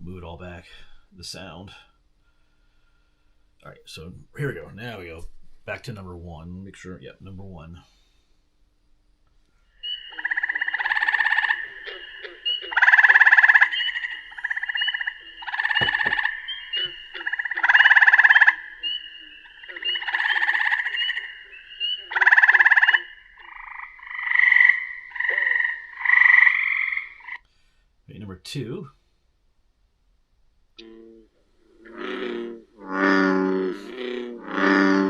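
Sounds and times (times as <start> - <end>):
frogs calling in pulsed trills: 9.6 - 27.5.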